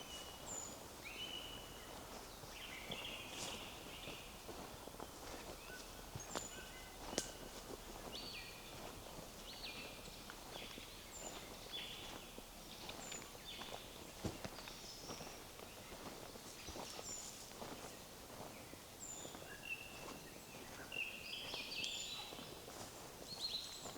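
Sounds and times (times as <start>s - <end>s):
footsteps on forest path: 0.0s - 23.9s
songbirds singing: 0.0s - 23.9s.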